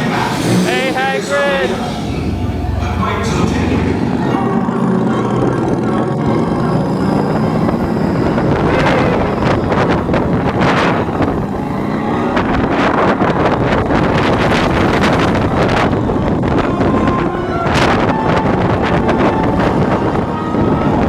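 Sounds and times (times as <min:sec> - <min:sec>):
wind rushing over microphone: 0:00.0 - 0:05.0, 0:06.5 - 0:21.0
roller coaster on track: 0:00.0 - 0:21.0.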